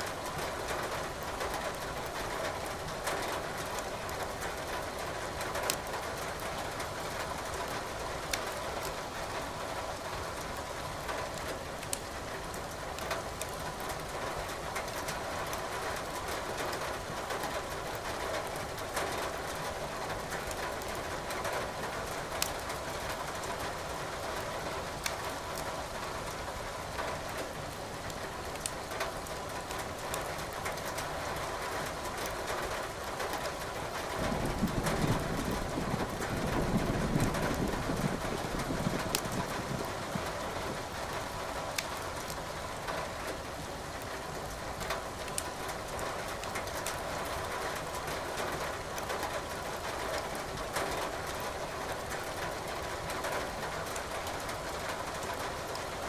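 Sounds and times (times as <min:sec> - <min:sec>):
rain hiss: 0:00.0 - 0:56.0
firewood crackling and popping: 0:05.6 - 0:06.4, 0:11.3 - 0:12.2, 0:12.9 - 0:13.7, 0:20.3 - 0:25.7, 0:27.4 - 0:31.0, 0:32.0 - 0:48.2.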